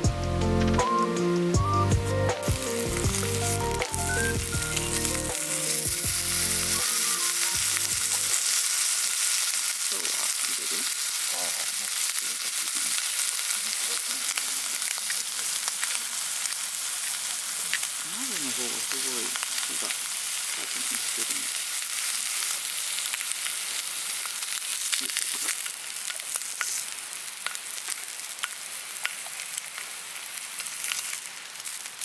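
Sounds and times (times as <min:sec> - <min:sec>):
background music: 0:00.0 - 0:08.4
food sizzling on a pan: 0:02.4 - 0:32.0.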